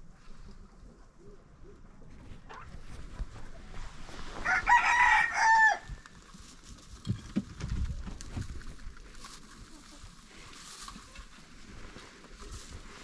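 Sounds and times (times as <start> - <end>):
rooster crowing: 4.4 - 6.0.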